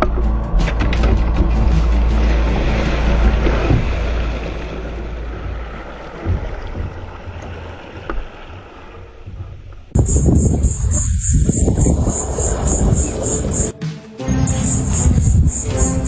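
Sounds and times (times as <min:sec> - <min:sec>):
boat low rumble: 0:00.0 - 0:13.7
water noise: 0:00.0 - 0:13.7
wind buffeting microphone: 0:09.3 - 0:13.7.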